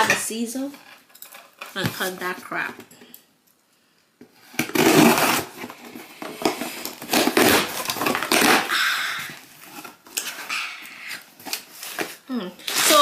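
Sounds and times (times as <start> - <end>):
wrapping crinkling: 4.5 - 13.0
scissors cutting package: 4.6 - 9.0, 11.1 - 13.0.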